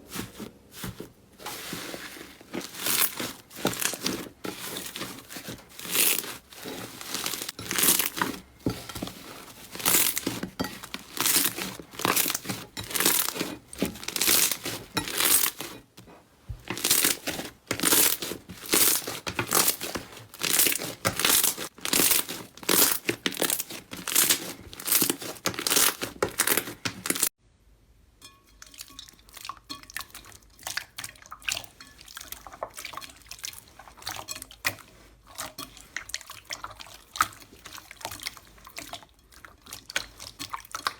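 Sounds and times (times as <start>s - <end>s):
slime being handled softly: 0.0s - 27.2s
crunchy slime crackling: 0.0s - 27.3s.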